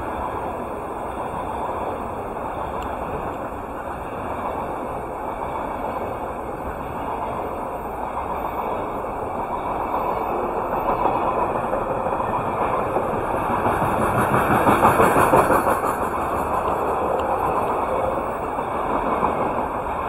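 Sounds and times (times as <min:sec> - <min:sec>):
freight train wheels rattling: 0:00.0 - 0:20.0.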